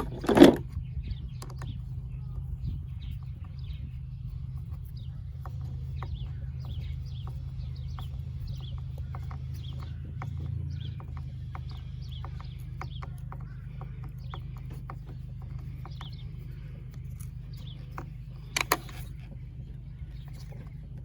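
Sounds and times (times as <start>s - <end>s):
bird chirps: 0.0s - 21.0s
steady low hum: 0.0s - 21.0s
clicks and taps of tools: 17.0s - 19.3s.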